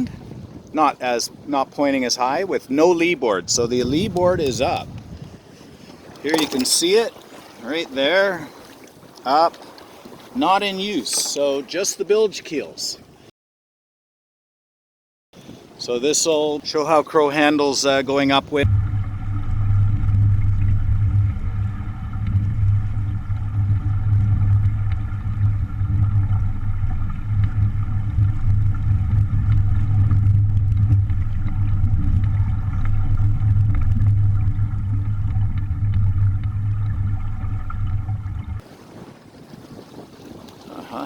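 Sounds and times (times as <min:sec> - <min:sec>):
motor humming: 0:18.7 - 0:38.6.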